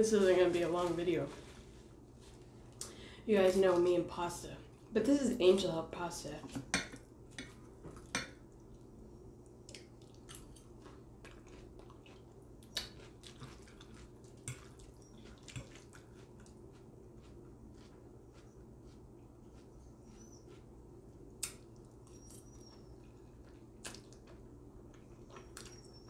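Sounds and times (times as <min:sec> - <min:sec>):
low steady hum: 0:00.0 - 0:26.0
wet chewing: 0:07.4 - 0:26.0.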